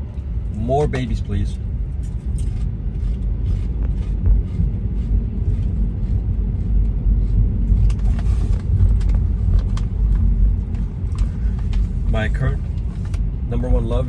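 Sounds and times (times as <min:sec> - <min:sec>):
car road noise rumble: 0:00.0 - 0:14.0.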